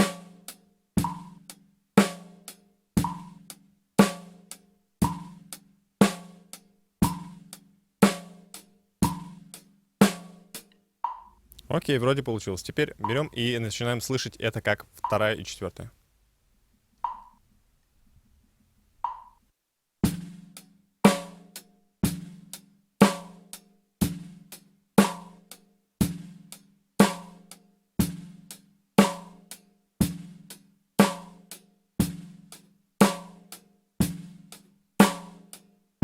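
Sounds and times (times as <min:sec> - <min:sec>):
drum kit steady beat: 0:00.0 - 0:10.6, 0:11.4 - 0:15.9, 0:20.0 - 0:35.6
metronome clicks: 0:13.0 - 0:13.4, 0:17.0 - 0:17.4, 0:19.0 - 0:19.4.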